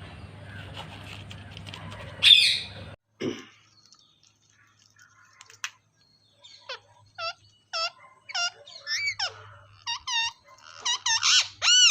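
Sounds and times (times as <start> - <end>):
parrot squeaky calls: 6.4 - 11.9.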